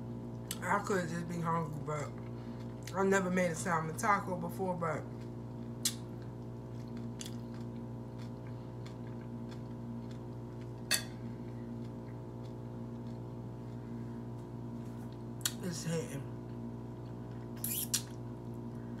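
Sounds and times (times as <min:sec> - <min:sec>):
steady hum: 0:00.0 - 0:19.0
person chewing: 0:02.1 - 0:02.9, 0:05.1 - 0:15.6, 0:16.5 - 0:18.2.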